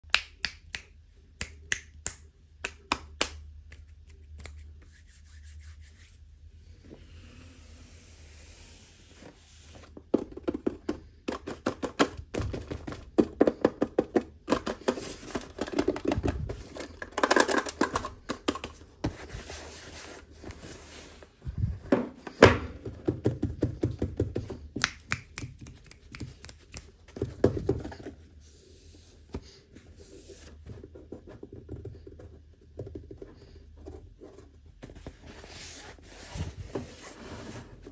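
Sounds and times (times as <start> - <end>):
toy packaging clicking and tapping: 10.1 - 18.8.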